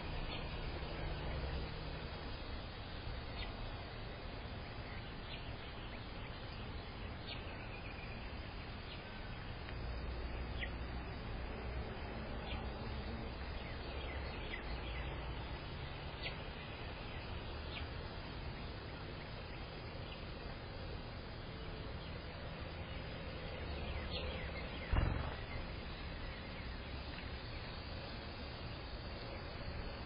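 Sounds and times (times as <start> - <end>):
outdoor background hiss: 0.0 - 30.0
low rumble: 24.9 - 26.1.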